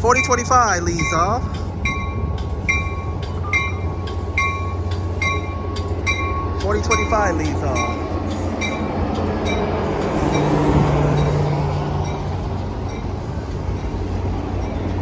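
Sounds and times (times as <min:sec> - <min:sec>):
train cars rumbling on rails: 0:00.0 - 0:15.0.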